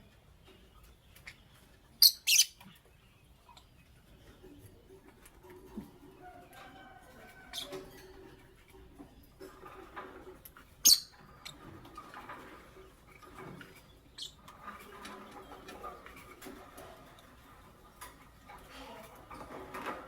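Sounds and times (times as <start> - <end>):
lovebirds chirping: 0.0 - 4.9, 10.8 - 11.8, 13.5 - 17.3.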